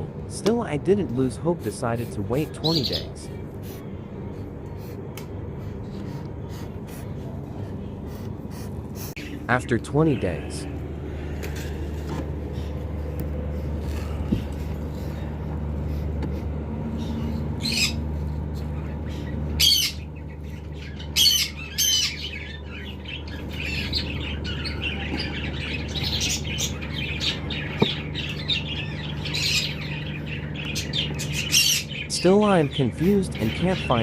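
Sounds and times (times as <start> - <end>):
steady low hum: 0.0 - 34.0
cockatiels calling: 1.4 - 3.4, 17.0 - 34.0
soft bird chirps: 16.8 - 34.0.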